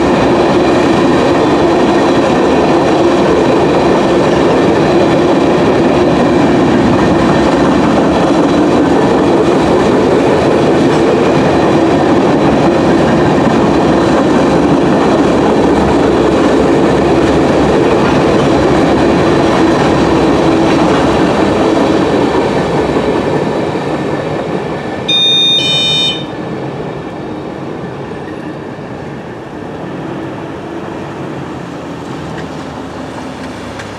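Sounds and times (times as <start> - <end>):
freight cars rolling past: 0.0 - 25.1, 25.7 - 33.9
short high tone: 25.1 - 26.4.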